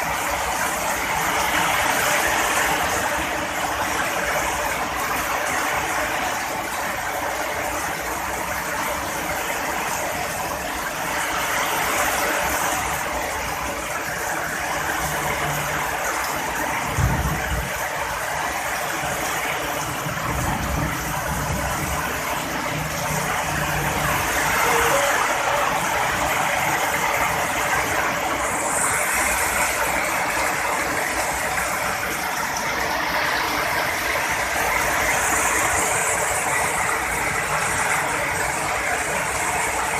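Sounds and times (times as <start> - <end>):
heavy rain falling: 0.0 - 39.9
thunder rumbling: 15.8 - 32.8.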